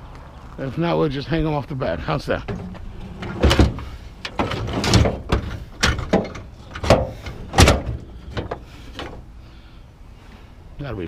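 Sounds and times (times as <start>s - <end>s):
metal bed rails clanking: 2.4s - 9.2s.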